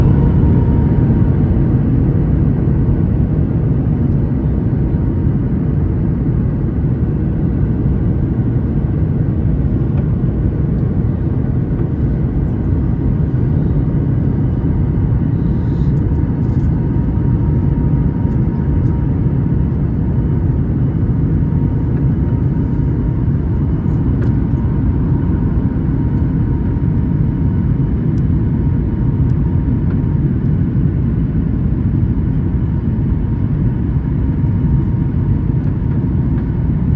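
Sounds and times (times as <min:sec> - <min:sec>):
airplane cabin engine rumble: 0:00.0 - 0:36.9
faint steady hum: 0:07.7 - 0:36.9.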